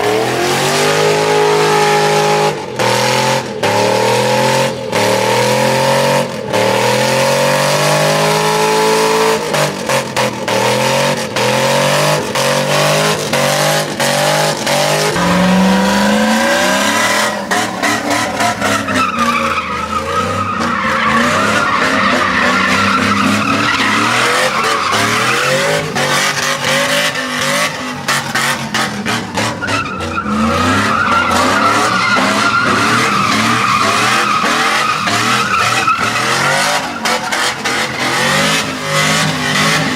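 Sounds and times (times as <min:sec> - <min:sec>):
truck engine revving hard: 0:00.0 - 0:39.9
tyres squealing and skidding: 0:00.0 - 0:39.9.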